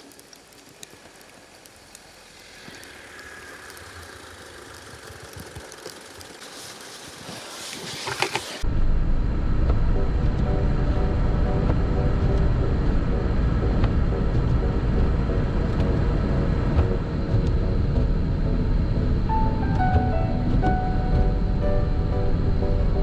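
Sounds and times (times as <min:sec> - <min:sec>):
crackly clicking: 0:00.0 - 0:07.2
car road and engine rumble: 0:08.2 - 0:23.0.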